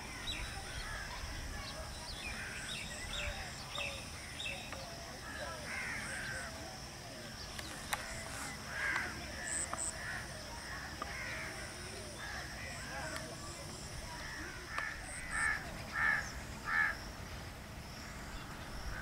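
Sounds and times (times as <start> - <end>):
birds calling and chirping: 0.0 - 19.0
harsh caw-like bird calls: 5.2 - 6.5, 8.7 - 12.9, 14.2 - 17.0.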